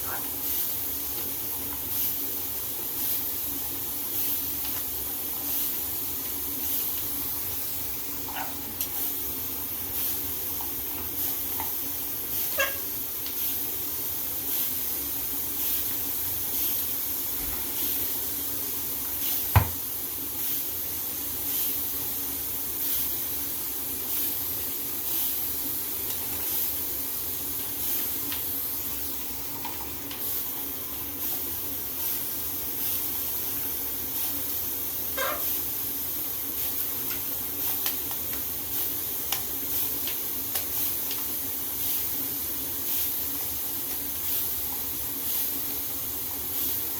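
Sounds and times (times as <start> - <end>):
shower water spraying: 0.0 - 46.9.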